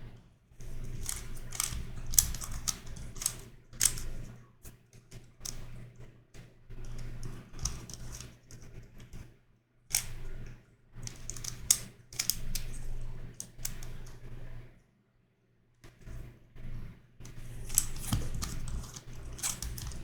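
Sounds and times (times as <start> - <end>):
plastic puzzle clicking: 0.8 - 4.2, 7.0 - 8.3, 9.9 - 10.1, 11.0 - 14.1, 17.3 - 20.0.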